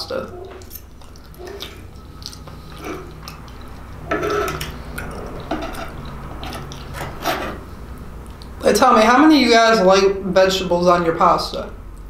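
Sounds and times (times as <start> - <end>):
wet mouth chewing sounds: 0.3 - 7.0, 7.7 - 8.6.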